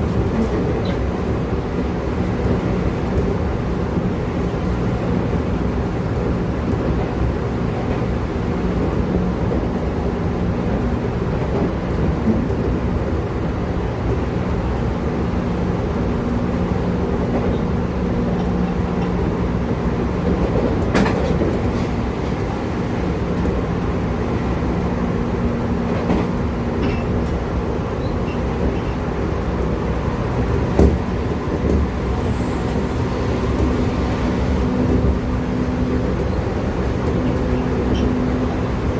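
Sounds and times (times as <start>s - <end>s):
low hum from train drive: 0.0s - 38.9s
train wheels rumbling on rail: 0.0s - 38.9s
sharp knocks from track: 30.7s - 31.0s.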